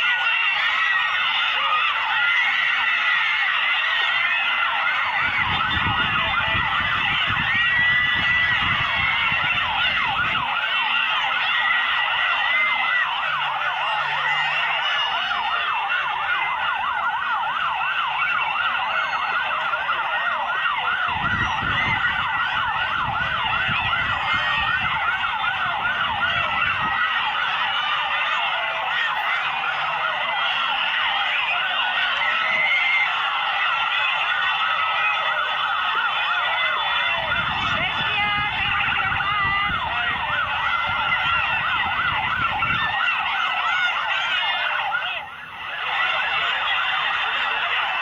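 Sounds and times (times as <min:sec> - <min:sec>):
vehicle sirens yelping: 0:00.0 - 0:48.0.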